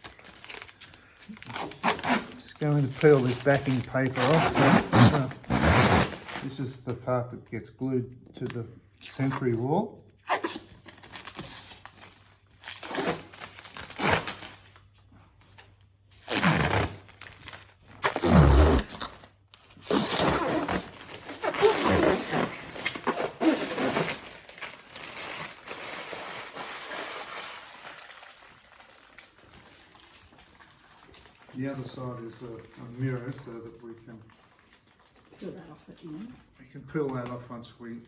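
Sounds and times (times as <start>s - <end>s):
backing paper peeling and ripping: 1.4s - 6.6s, 16.2s - 35.2s.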